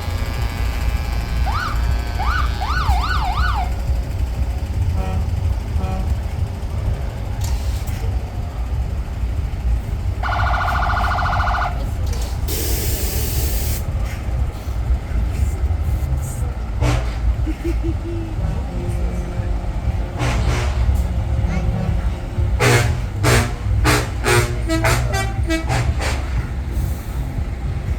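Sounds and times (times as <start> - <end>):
trucks rumbling past: 0.0 - 27.9
siren wailing: 0.8 - 3.9, 10.2 - 11.9
horn: 20.1 - 21.7, 22.4 - 26.5.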